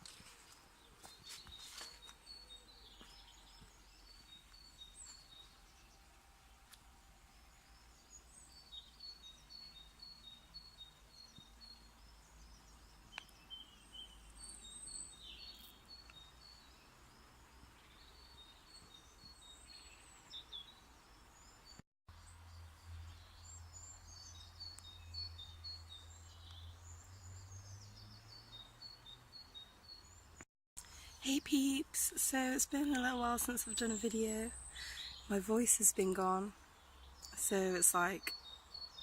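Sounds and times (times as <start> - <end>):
songbirds singing: 0.0 - 39.0.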